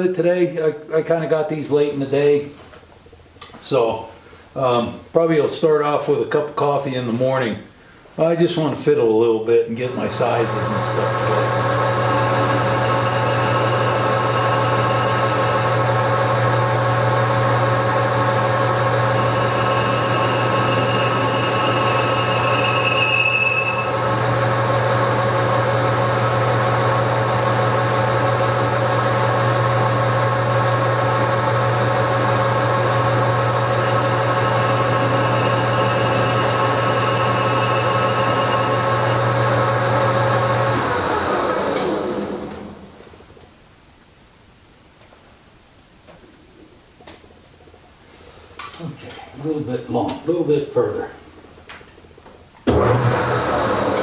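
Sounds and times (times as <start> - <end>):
metal lathe running: 9.9 - 42.7, 52.7 - 54.0
high whine: 18.5 - 24.8.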